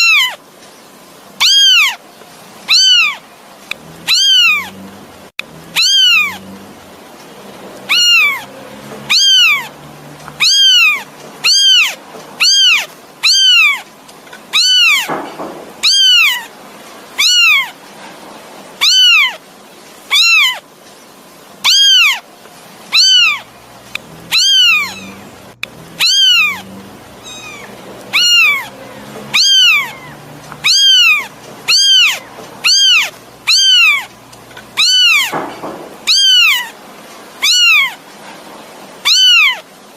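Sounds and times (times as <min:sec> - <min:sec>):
kitten meowing: 0:00.0 - 0:00.4, 0:01.4 - 0:02.0, 0:02.7 - 0:03.2, 0:04.0 - 0:04.8, 0:05.7 - 0:06.5, 0:07.9 - 0:13.9, 0:14.5 - 0:16.5, 0:17.2 - 0:17.8, 0:18.8 - 0:19.4, 0:20.1 - 0:20.6, 0:21.6 - 0:22.2, 0:22.9 - 0:34.1, 0:34.7 - 0:36.8, 0:37.4 - 0:38.0, 0:39.0 - 0:39.7.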